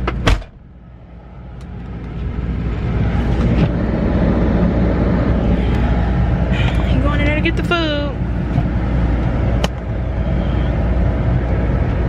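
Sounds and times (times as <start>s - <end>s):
car rumble inside cabin: 0.0s - 12.0s.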